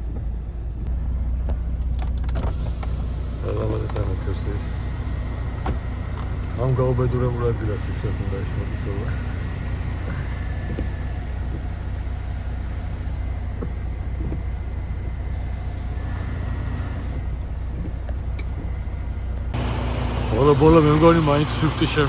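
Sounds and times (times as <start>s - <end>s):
diesel truck engine droning: 0.0s - 22.0s.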